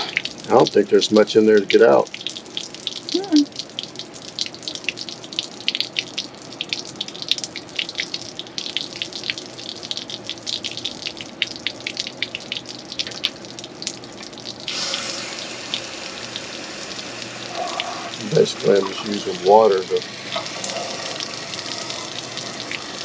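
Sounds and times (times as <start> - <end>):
water splashing from drain: 0.0 - 23.0
hiss of rushing water: 14.7 - 21.2.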